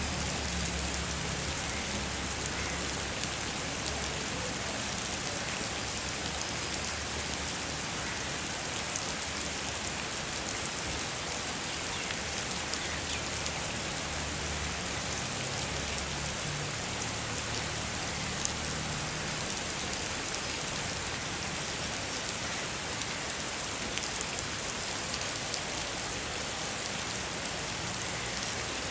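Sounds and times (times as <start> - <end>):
heavy rain hissing: 0.0 - 28.9
raindrops ticking on surfaces: 0.0 - 28.9.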